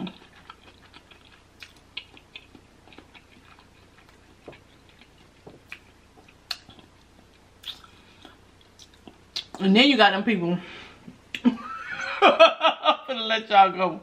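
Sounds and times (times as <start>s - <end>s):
chewing with wet mouth clicks: 0.0s - 9.6s.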